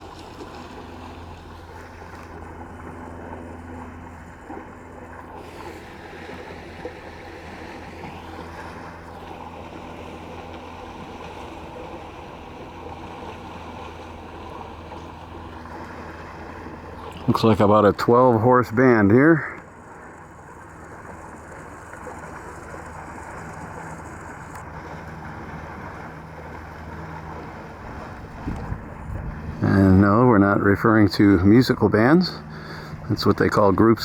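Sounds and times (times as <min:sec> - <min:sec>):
river water rushing: 0:00.0 - 0:34.0
wind noise on microphone: 0:27.8 - 0:30.0.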